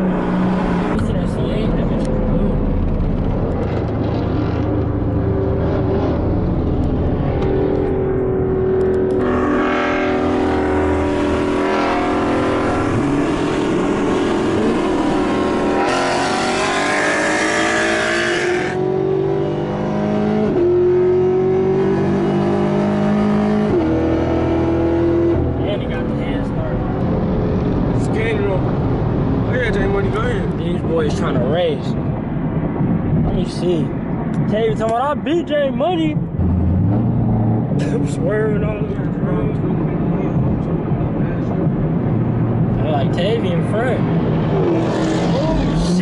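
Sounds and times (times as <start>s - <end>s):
car engines running: 0.0s - 46.0s
road and wind noise: 0.0s - 46.0s.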